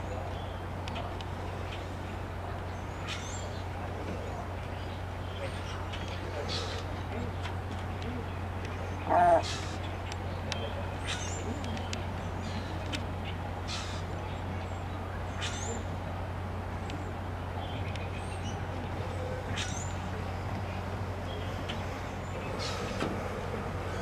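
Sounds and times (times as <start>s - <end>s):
harsh bird calls: 8.2s - 16.0s, 16.9s - 24.0s.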